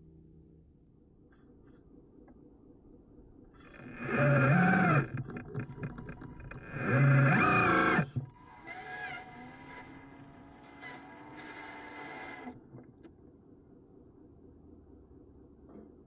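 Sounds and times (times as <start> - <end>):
small electric motors whining: 3.6 - 12.6.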